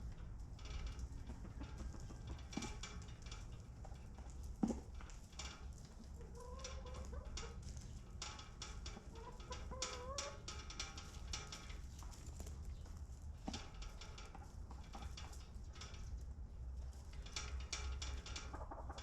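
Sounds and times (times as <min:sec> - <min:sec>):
hens clucking and calling: 0:06.2 - 0:07.4, 0:09.1 - 0:10.4.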